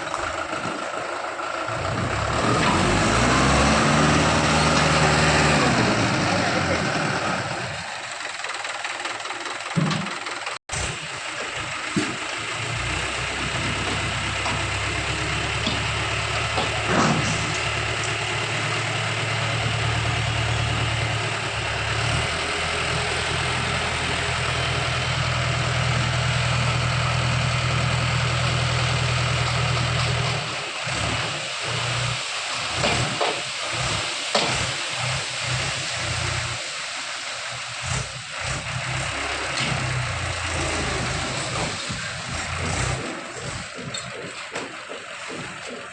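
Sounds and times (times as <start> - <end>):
diesel tractor engine running: 0.0 - 45.9
knocks and thumps: 42.9 - 45.9.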